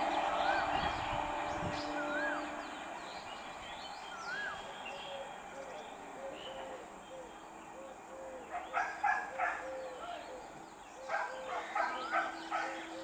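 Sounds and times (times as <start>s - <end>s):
birds calling: 0.0s - 5.4s.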